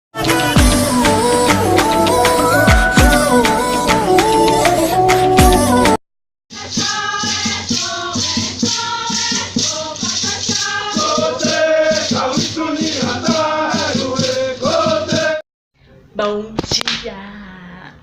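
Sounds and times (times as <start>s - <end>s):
person singing: 0.2s - 6.0s
shaker rhythm: 0.2s - 15.4s.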